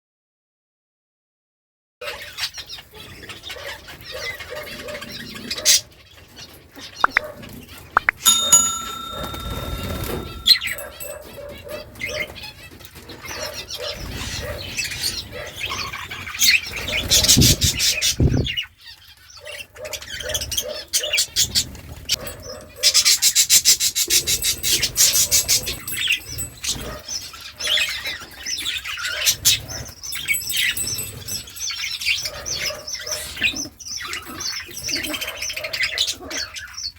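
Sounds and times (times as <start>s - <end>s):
budgerigars chirping and chattering: 2.1s - 7.2s, 12.0s - 22.2s, 31.7s - 36.9s.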